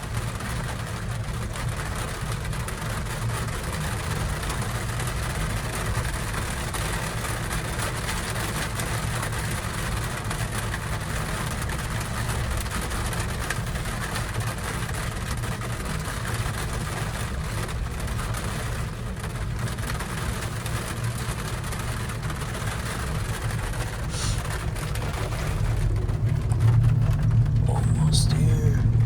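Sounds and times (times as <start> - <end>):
gondola cabin rumbling on cable: 24.1 - 29.0.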